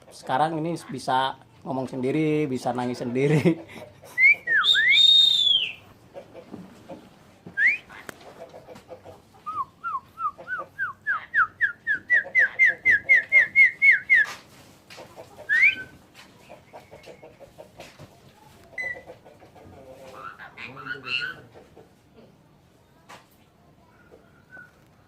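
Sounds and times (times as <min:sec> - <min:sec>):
starling whistling: 0:04.2 - 0:05.8, 0:07.6 - 0:07.9, 0:09.5 - 0:14.3, 0:15.5 - 0:16.0.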